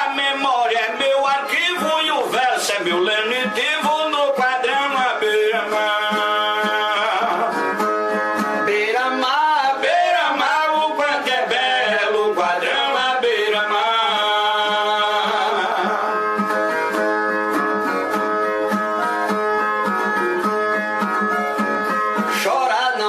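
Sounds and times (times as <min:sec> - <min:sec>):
person singing: 0:00.0 - 0:07.9, 0:08.6 - 0:17.0, 0:22.2 - 0:23.0
guitar strumming: 0:00.0 - 0:23.0.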